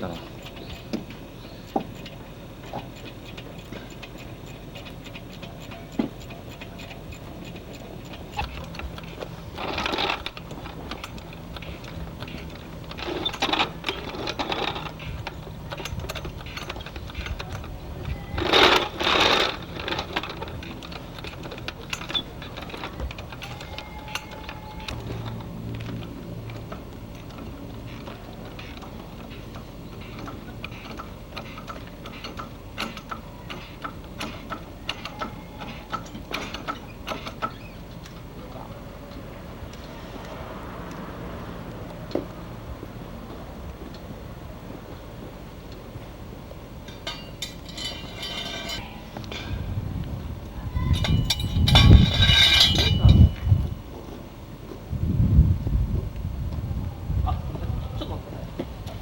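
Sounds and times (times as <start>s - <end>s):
metal clinks of hand tools: 46.9s - 49.6s, 50.9s - 53.8s.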